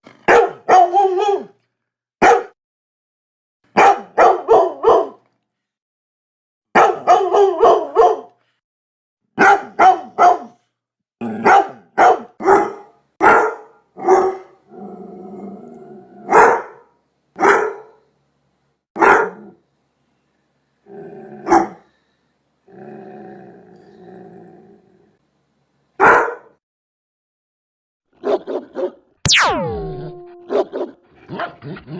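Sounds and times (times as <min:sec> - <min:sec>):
large dog barking: 0:00.2 - 0:01.6, 0:02.2 - 0:02.6, 0:03.8 - 0:05.2, 0:06.8 - 0:08.4, 0:09.4 - 0:10.6, 0:11.2 - 0:14.6, 0:16.2 - 0:18.0, 0:19.0 - 0:19.6, 0:21.4 - 0:21.8, 0:26.0 - 0:26.5, 0:28.2 - 0:29.0
dog growling: 0:14.7 - 0:16.3, 0:20.9 - 0:21.8, 0:22.7 - 0:25.2.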